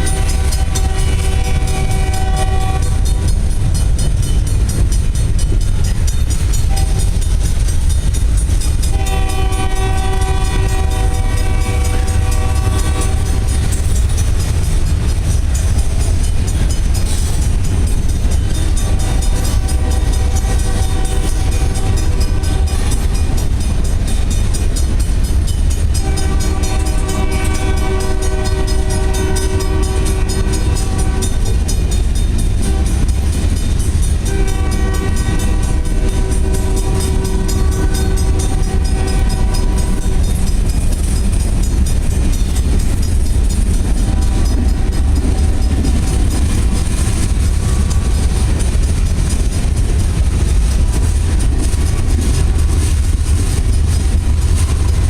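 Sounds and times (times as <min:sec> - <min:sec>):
locomotive horn blasts: 0:00.0 - 0:03.3, 0:06.7 - 0:07.1, 0:08.9 - 0:13.8, 0:18.6 - 0:23.4, 0:25.9 - 0:31.5, 0:32.6 - 0:40.4, 0:44.0 - 0:46.5
freight train rumbling past: 0:00.0 - 0:55.0.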